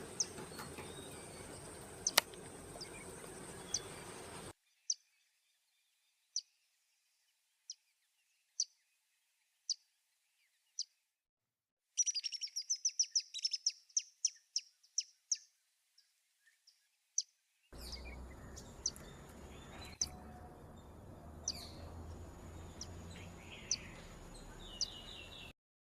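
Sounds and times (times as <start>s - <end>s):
woodpecker calling: 0.0s - 4.5s, 17.8s - 25.5s
woodpecker rattling call: 0.0s - 4.5s, 17.8s - 25.5s
background hiss: 0.0s - 4.6s.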